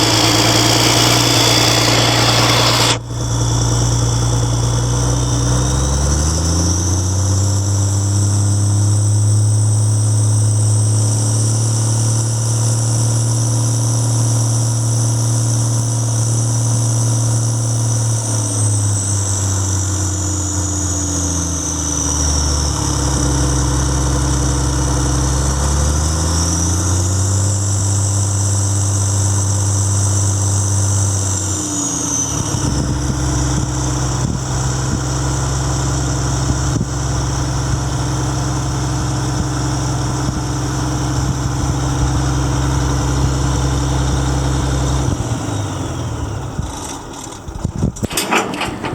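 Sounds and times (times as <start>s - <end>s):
diesel engine revving: 0.0s - 11.2s.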